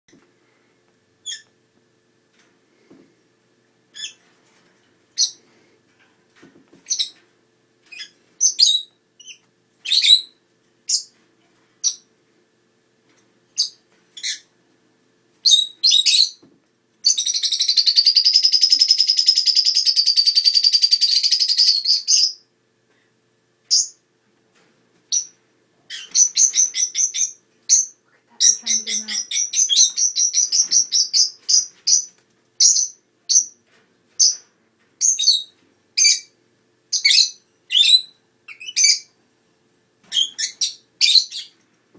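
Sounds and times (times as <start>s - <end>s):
lovebirds chirping: 25.1s - 33.6s, 40.1s - 41.6s.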